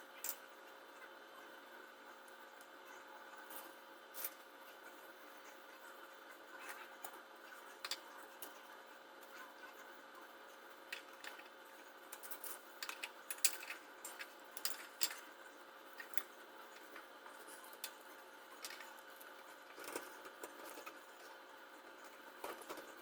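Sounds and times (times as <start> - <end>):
faint steady hum: 0.0 - 23.0
small parts and tools clicking: 6.6 - 8.6, 10.9 - 15.4, 16.0 - 21.0.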